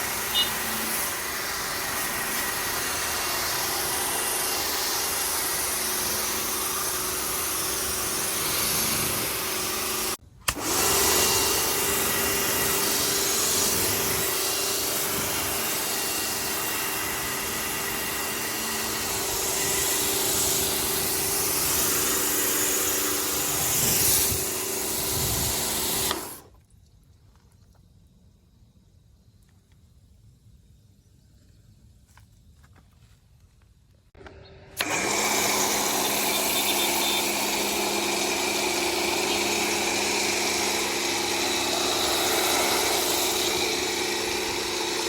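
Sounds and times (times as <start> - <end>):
pressure washer spray hiss: 0.0 - 10.2, 19.3 - 26.4, 34.8 - 45.0
pressure washer motor hum: 0.0 - 26.5, 34.2 - 45.0.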